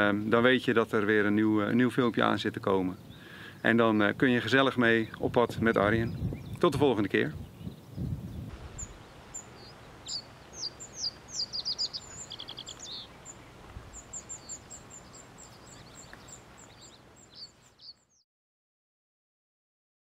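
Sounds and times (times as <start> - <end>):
faint background hiss: 0.0 - 18.0
small birds chirping and singing: 0.0 - 18.2
bird trill: 7.6 - 18.2.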